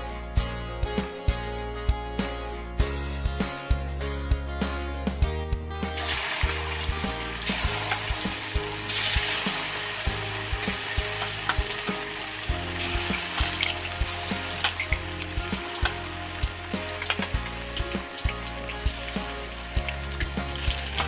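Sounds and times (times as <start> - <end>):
background music with a beat: 0.0 - 21.0
chicken deep-frying in hot oil: 6.0 - 21.0.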